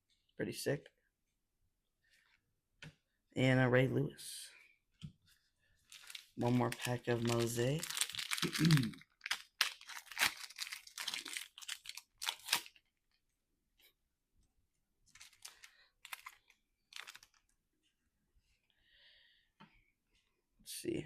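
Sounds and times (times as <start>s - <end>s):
plastic wrapper tearing and crinkling: 5.9s - 12.8s, 15.1s - 17.4s.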